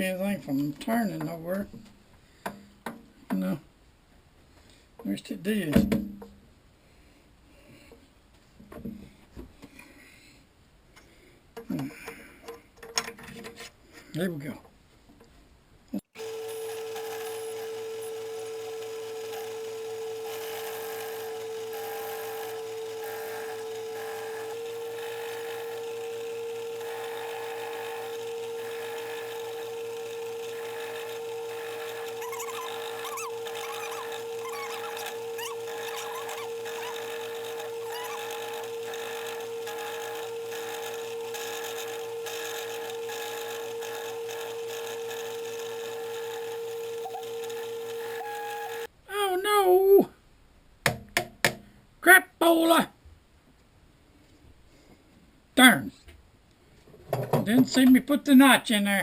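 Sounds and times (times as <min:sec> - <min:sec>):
machine tool motor whine: 0:16.2 - 0:48.9
faint short squeaks: 0:32.2 - 0:37.1.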